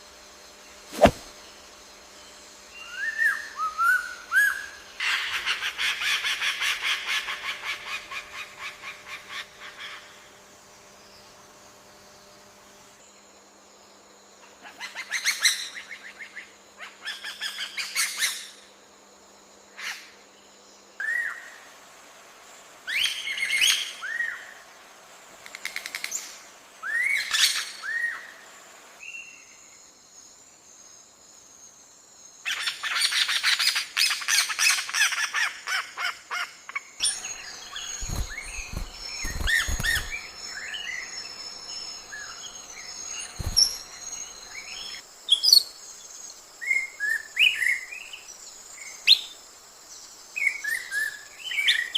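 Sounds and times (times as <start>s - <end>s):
birds trilling: 37.0s - 45.0s
birds chattering: 37.0s - 45.4s.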